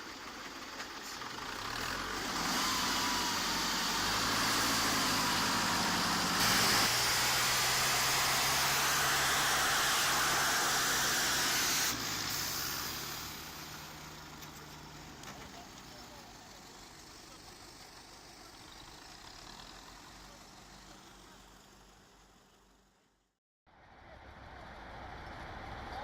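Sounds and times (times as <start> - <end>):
heavy truck engine under load: 0.0 - 22.8
broad hiss: 2.8 - 14.0.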